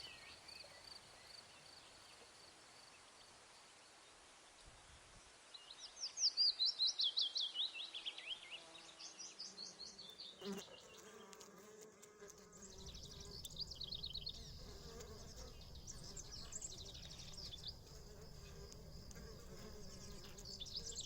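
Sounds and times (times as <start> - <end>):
bee buzzing: 10.4 - 21.0.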